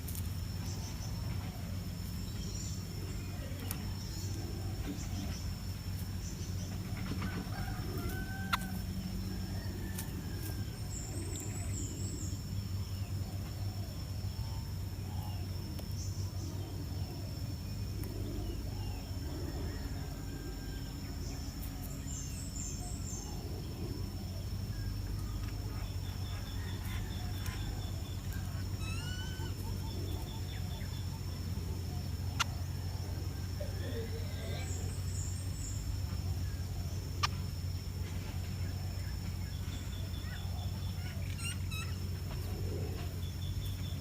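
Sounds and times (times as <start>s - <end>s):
small birds chirping: 0.0s - 44.0s
steady low hum: 0.0s - 44.0s
bird trills: 25.7s - 31.3s, 39.9s - 42.1s.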